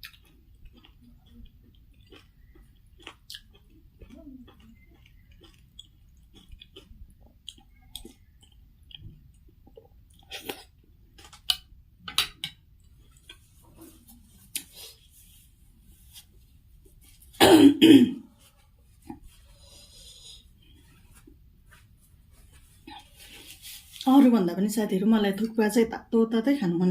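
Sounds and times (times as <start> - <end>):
throat-clearing cough: 17.4 - 18.2.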